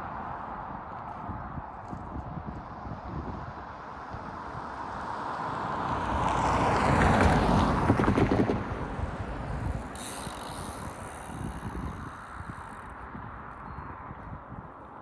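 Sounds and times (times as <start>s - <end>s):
wind on microphone: 0.2s - 4.6s, 7.2s - 14.9s
vehicle passing by: 5.2s - 12.9s.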